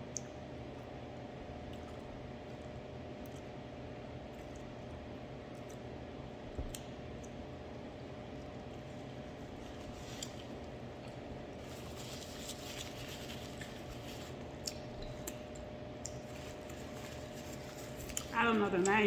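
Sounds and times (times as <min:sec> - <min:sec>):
steady low hum: 0:00.0 - 0:19.0
person chewing: 0:08.7 - 0:19.0
wet mouth clicks: 0:14.6 - 0:16.3.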